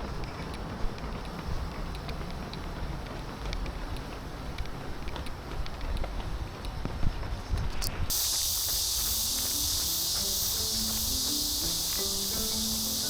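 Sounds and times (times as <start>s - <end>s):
wind rumbling on microphone: 0.0s - 9.8s.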